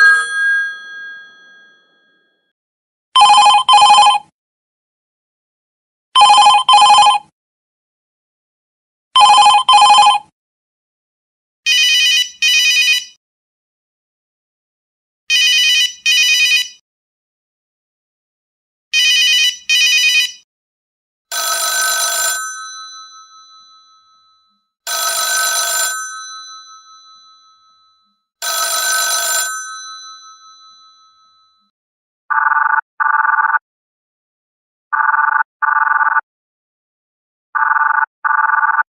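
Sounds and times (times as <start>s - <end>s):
bright trilling phone ring: 0.0s - 2.3s, 21.3s - 31.7s
telephone bell ringing: 0.0s - 2.3s, 3.2s - 4.3s, 6.2s - 7.3s, 9.2s - 10.3s, 11.7s - 13.2s, 15.3s - 16.7s, 19.0s - 20.4s, 21.3s - 31.7s.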